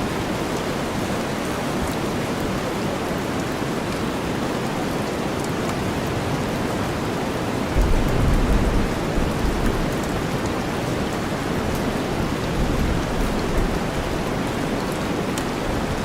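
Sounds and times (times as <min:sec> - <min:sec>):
steady rain: 0:00.0 - 0:16.0
low rumble: 0:07.8 - 0:10.3
raindrop ticks: 0:07.8 - 0:15.8.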